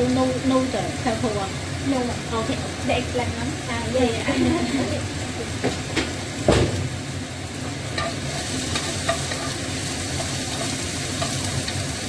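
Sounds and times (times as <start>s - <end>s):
fish sizzling in oil: 0.0s - 12.0s
spatula tapping pan: 7.9s - 11.8s.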